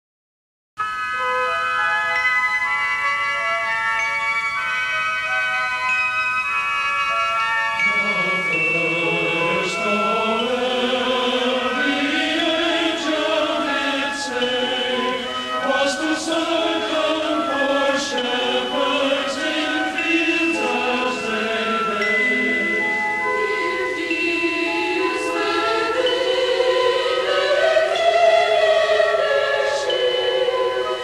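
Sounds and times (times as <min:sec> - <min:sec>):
instrumental accompaniment: 0:00.8 - 0:31.0
choir singing slow lines: 0:07.8 - 0:31.0.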